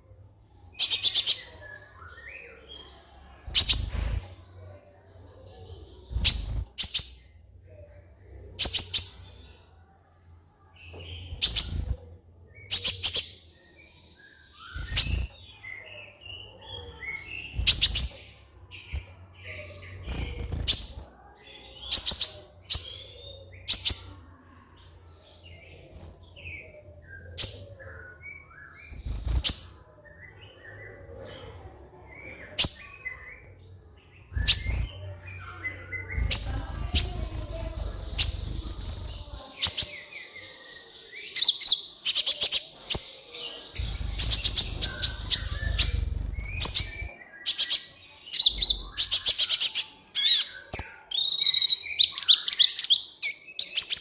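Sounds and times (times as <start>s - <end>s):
bird twittering: 17.3s - 18.3s, 34.3s - 35.1s, 35.8s - 40.0s, 43.7s - 52.8s.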